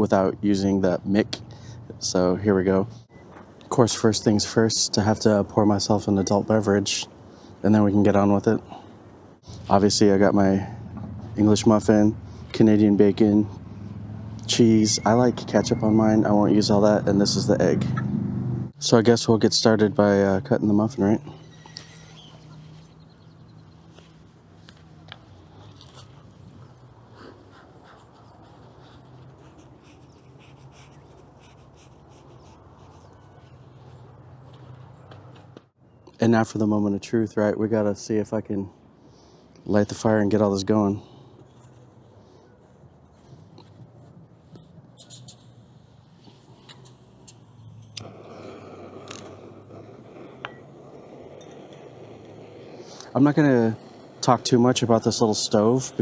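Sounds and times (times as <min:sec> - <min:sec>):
gas burner flame hissing: 0:45.3 - 0:56.0.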